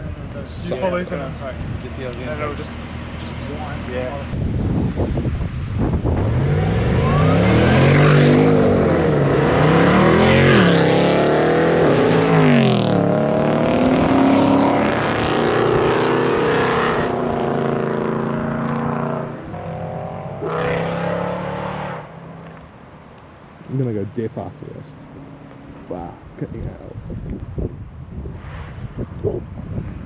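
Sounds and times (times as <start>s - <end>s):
car engine revving: 0.4s - 4.4s, 5.7s - 22.6s.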